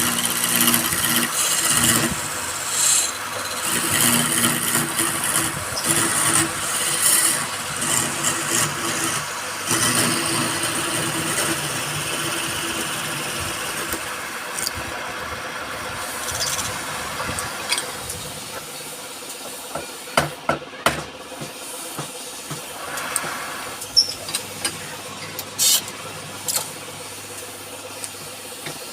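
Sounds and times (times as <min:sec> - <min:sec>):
turning tool cutting wood: 0:00.0 - 0:18.8
wood lathe motor hum: 0:00.0 - 0:18.9.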